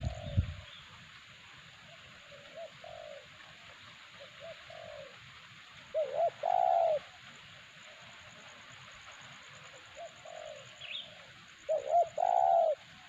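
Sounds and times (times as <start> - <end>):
dove cooing: 0.0 - 0.7, 1.9 - 5.3, 5.9 - 7.3, 9.5 - 13.0.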